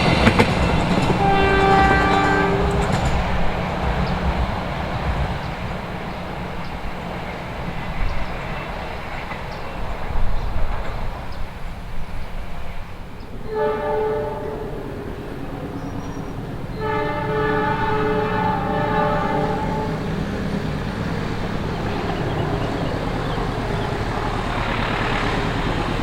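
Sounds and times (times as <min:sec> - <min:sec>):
train wheels rumbling on rails: 0:00.0 - 0:26.0
locomotive horn blasts: 0:01.1 - 0:03.2, 0:13.4 - 0:15.0, 0:16.7 - 0:20.2.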